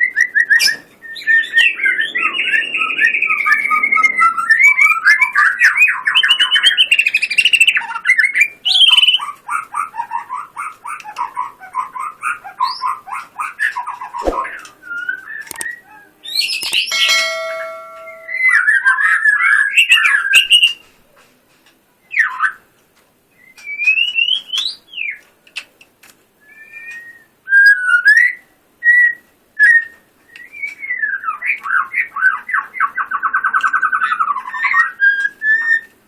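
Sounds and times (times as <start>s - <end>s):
fast rattling bird trill: 16.3s - 18.7s.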